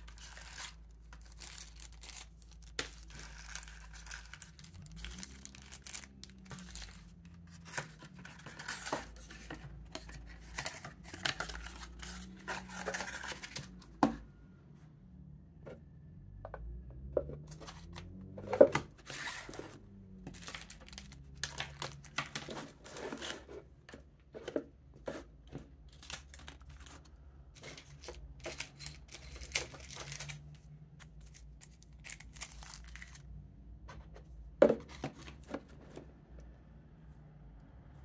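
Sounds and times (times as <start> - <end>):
plastic and paper tearing and crinkling: 0.0 - 13.8, 17.5 - 23.7, 25.0 - 33.3.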